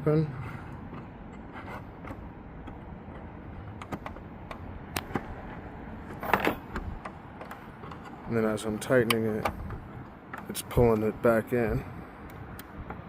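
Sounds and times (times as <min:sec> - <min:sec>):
hand tool clicks and taps: 0:02.0 - 0:05.3.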